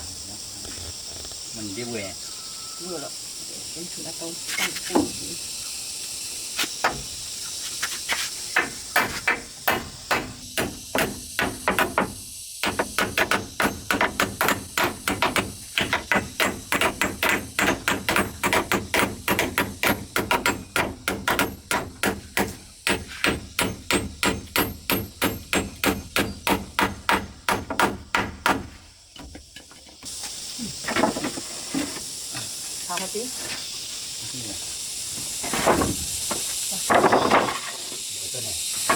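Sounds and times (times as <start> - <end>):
hand tool knocking: 8.6 - 28.7.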